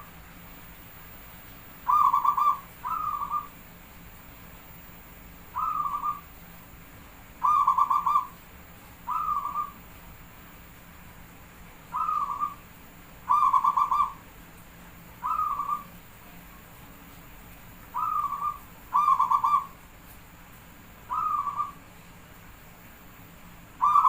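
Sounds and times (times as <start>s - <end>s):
dove cooing: 1.9s - 3.5s, 5.5s - 6.2s, 7.4s - 8.4s, 9.1s - 9.8s, 11.9s - 12.6s, 13.3s - 14.2s, 15.2s - 15.9s, 17.9s - 19.8s, 21.1s - 21.8s, 23.8s - 24.0s.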